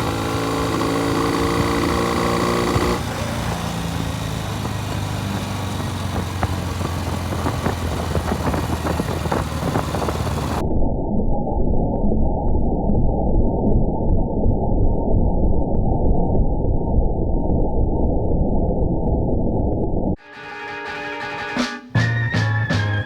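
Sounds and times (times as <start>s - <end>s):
motorcycle engine running with crackles: 0.0s - 10.6s.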